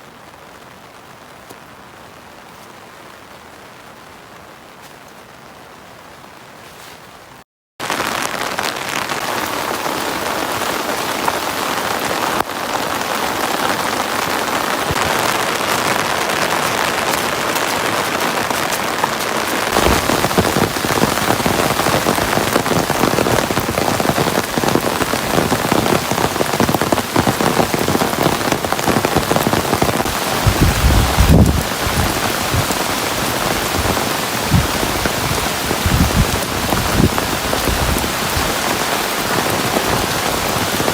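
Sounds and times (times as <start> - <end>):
heavy rain falling: 0.0 - 40.9
dull low thumps and rumbles: 30.4 - 32.8.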